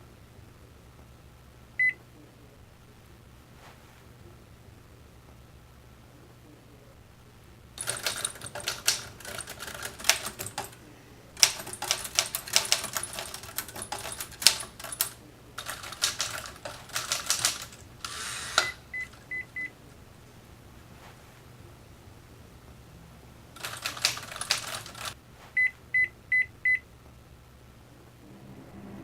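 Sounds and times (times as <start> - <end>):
rapid clicking and crackling: 7.8 - 19.2, 23.6 - 25.2
microwave beeps: 18.6 - 19.7, 25.6 - 26.8.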